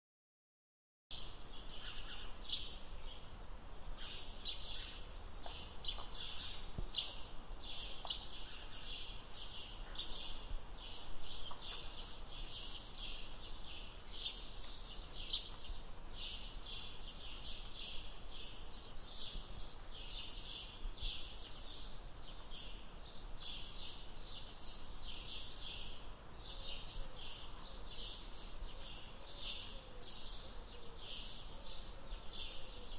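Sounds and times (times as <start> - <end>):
birds chirping: 1.1 - 32.9.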